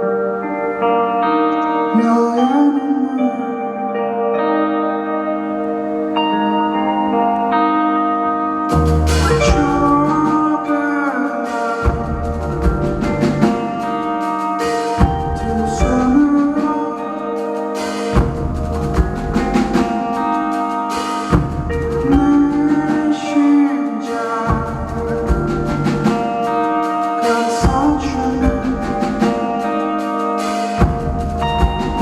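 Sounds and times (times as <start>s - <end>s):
rock band playing live: 0.0s - 32.0s
drum kit hits: 8.7s - 10.4s, 17.8s - 20.3s, 20.9s - 22.9s.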